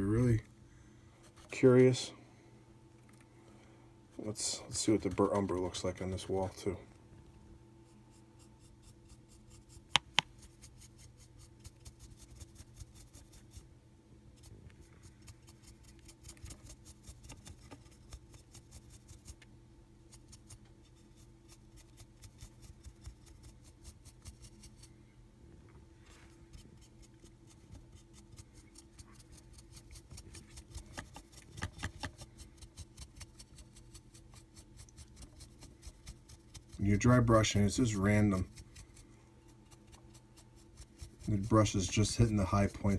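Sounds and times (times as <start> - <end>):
paintbrush scrubbing plaster: 4.2 - 5.9, 7.8 - 13.7, 14.4 - 19.4, 20.1 - 24.9, 26.4 - 42.9.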